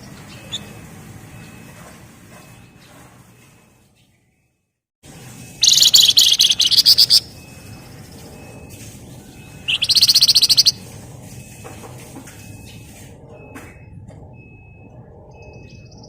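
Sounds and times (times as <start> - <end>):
songbird rattling trill: 0.0 - 1.7, 5.6 - 10.9.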